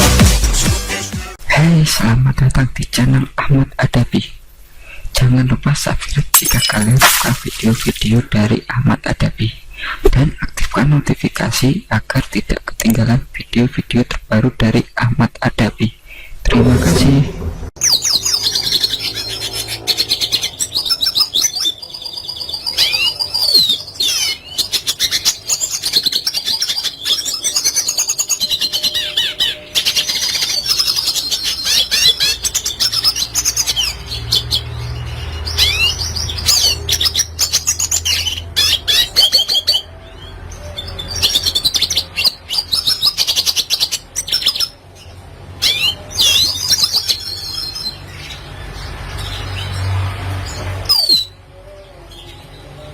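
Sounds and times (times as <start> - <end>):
bird twittering and trilling: 14.6 - 52.9.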